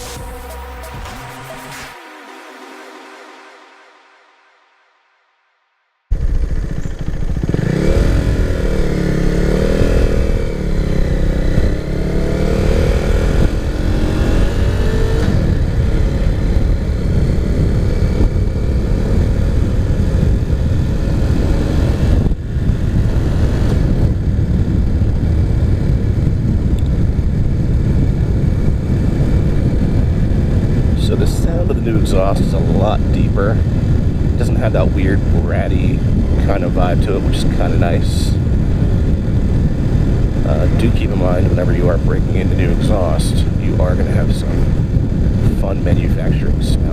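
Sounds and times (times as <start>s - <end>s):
motorcycle engine accelerating: 0.0s - 4.3s, 6.1s - 46.9s.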